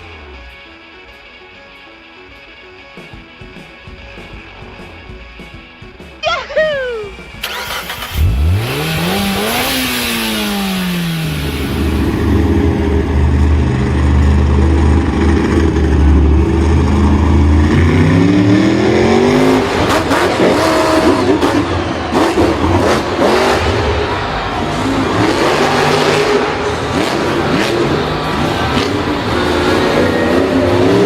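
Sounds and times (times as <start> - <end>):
engine revving: 7.3 - 31.0.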